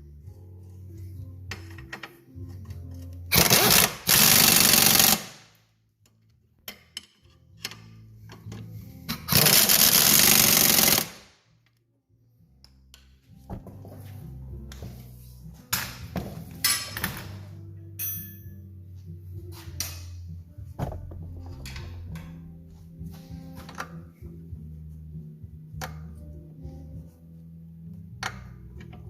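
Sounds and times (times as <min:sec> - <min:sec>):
plucked-string background music: 0:00.0 - 0:05.4, 0:06.0 - 0:11.2, 0:12.4 - 0:29.0
power tool rattling: 0:03.3 - 0:05.4, 0:09.3 - 0:11.2.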